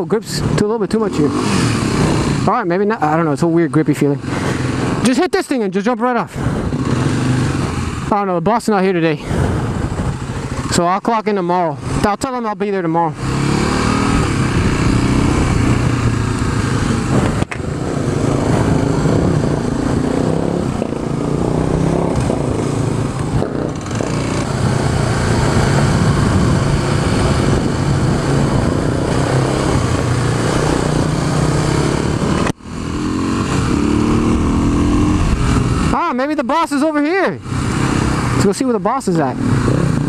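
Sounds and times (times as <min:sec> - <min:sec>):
dirt bike engine running: 0:09.3 - 0:40.0.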